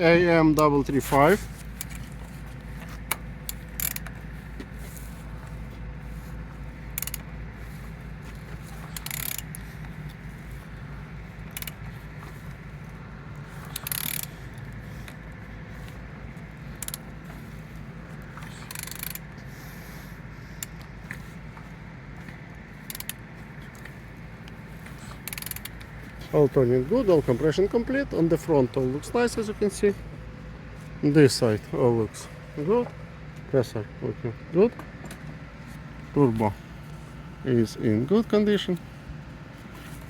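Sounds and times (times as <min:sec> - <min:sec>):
wrench clicking and ratcheting: 0:01.6 - 0:02.1, 0:03.1 - 0:04.2, 0:06.9 - 0:07.3, 0:08.7 - 0:09.7, 0:11.4 - 0:11.9, 0:13.6 - 0:15.2, 0:16.6 - 0:17.4, 0:18.4 - 0:19.4, 0:22.8 - 0:23.9, 0:24.9 - 0:25.9.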